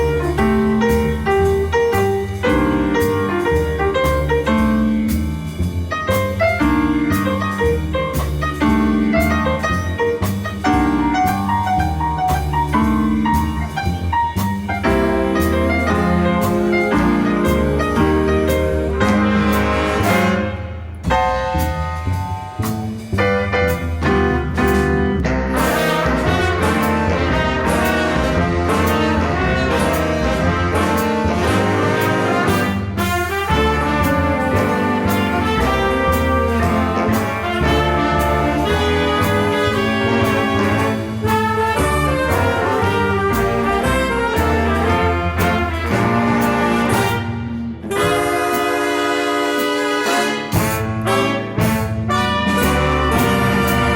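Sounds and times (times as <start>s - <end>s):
walking bass: 0.0s - 49.2s, 50.4s - 53.9s
drum kit beat: 0.0s - 53.9s
jazz band playing: 0.0s - 53.9s
piano: 0.0s - 53.9s
trumpets and trombones: 14.9s - 21.7s, 25.5s - 53.9s.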